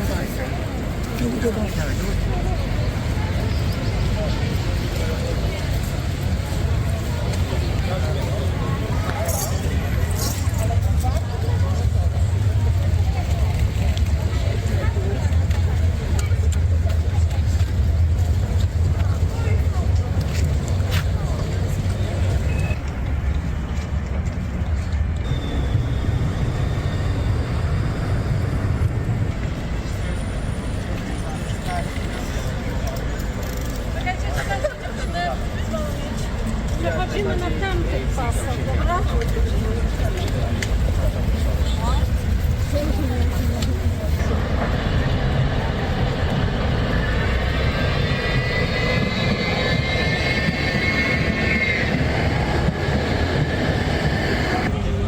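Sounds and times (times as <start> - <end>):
street traffic rumble: 0.0 - 55.0
passing vehicle whine: 37.9 - 55.0.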